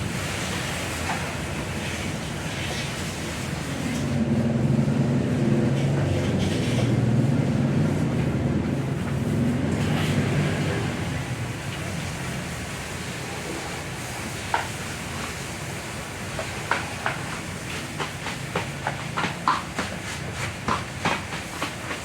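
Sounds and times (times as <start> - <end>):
low engine hum: 4.0 - 11.8.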